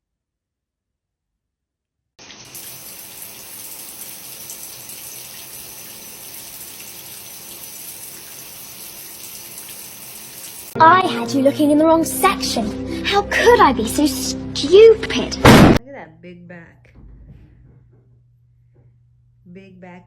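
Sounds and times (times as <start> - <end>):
tap water running into a sink: 2.2 - 10.8.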